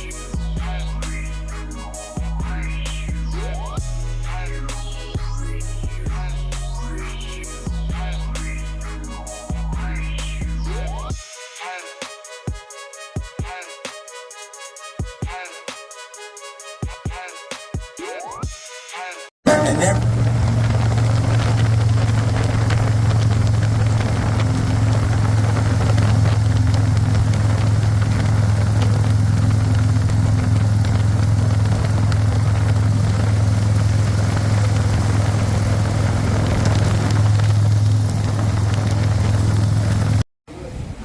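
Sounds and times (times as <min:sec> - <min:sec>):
low engine hum: 0:19.5 - 0:40.7.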